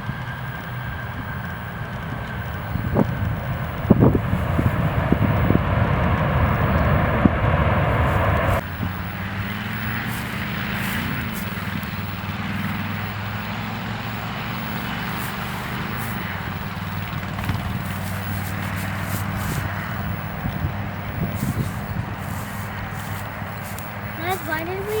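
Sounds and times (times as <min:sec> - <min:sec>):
airliner engines running: 0:00.0 - 0:25.0
low hum: 0:00.0 - 0:25.0
wind thumping on microphone: 0:01.2 - 0:09.0, 0:14.6 - 0:25.0.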